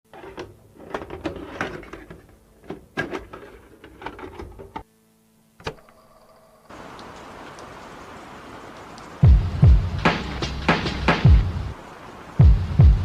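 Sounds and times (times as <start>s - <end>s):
faint steady hum: 0.1s - 10.1s.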